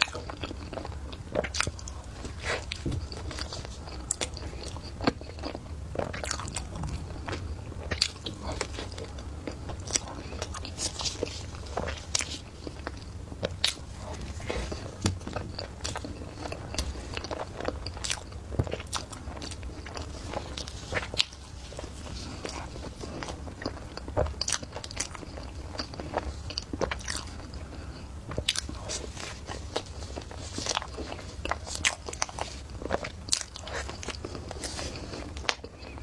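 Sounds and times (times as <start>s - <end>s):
biting and chewing: 0.0s - 36.0s
faint low hum: 0.0s - 36.0s
wet clicks and crunches: 9.5s - 21.4s.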